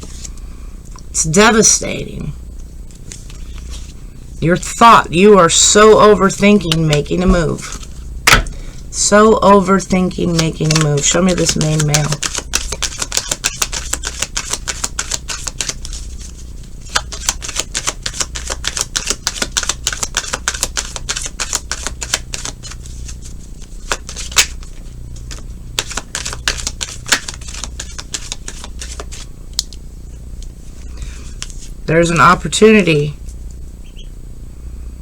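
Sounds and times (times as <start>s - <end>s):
steady low hum: 0.0s - 35.0s
cards being shuffled: 6.5s - 8.0s, 9.8s - 29.8s, 30.4s - 31.8s
card snap: 25.8s - 29.8s.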